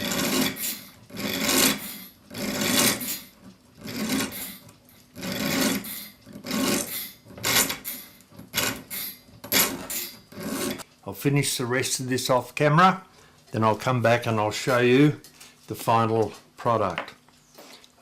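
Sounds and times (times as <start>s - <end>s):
file strokes on steel: 0.0s - 10.9s.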